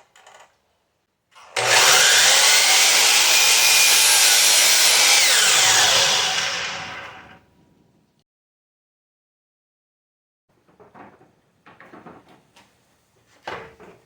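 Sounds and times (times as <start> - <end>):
power saw cutting wood: 1.4 - 7.4.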